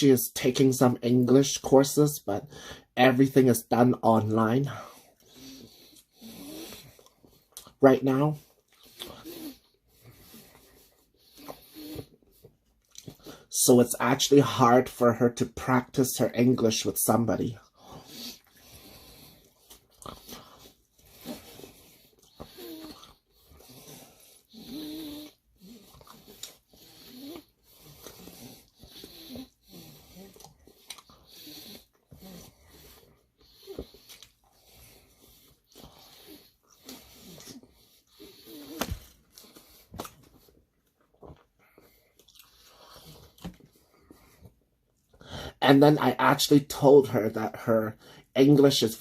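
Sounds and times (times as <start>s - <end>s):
breathing through the nose: 2.5s - 3.0s
person chewing food: 5.1s - 7.8s, 8.5s - 13.4s, 17.8s - 45.2s
mouth smacks and clicks: 30.3s - 31.2s.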